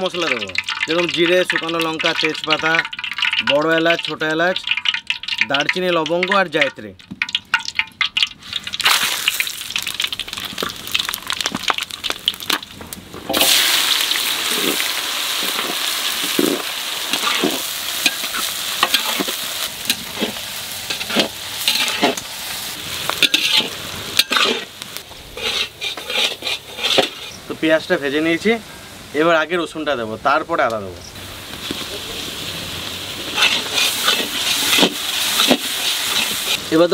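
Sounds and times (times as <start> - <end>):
oil sizzling: 0.0 - 36.9
metal spatula scraping a pan: 15.5 - 22.2, 23.2 - 27.5, 33.2 - 36.7.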